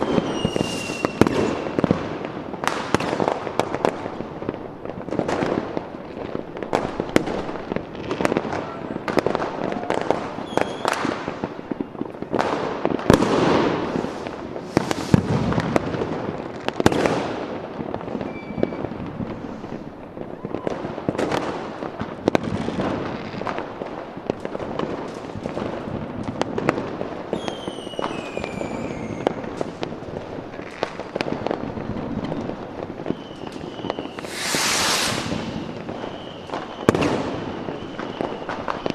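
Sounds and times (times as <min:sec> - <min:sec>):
fireworks whistles falling in pitch: 0:00.0 - 0:02.0, 0:08.2 - 0:12.0, 0:13.3 - 0:15.7, 0:18.2 - 0:19.0, 0:27.3 - 0:29.5, 0:32.3 - 0:38.9
fireworks bangs and crackling: 0:00.0 - 0:38.9.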